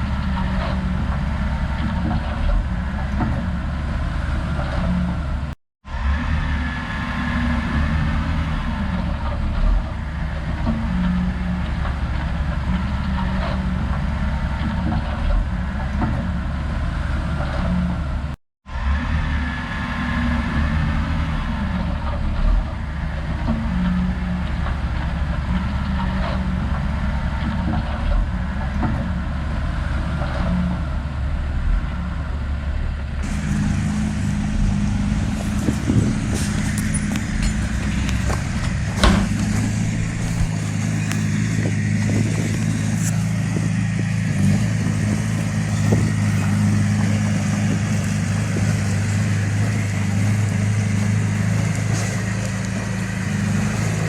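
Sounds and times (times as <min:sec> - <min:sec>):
diesel machinery engine running: 0:00.0 - 0:54.0
sharp metallic knocks: 0:33.2 - 0:50.4.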